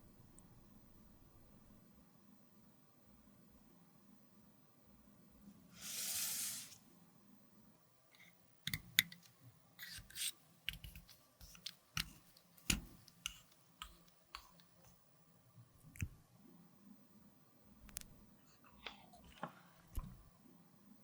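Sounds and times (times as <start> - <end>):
short hiss: 5.7 - 6.8.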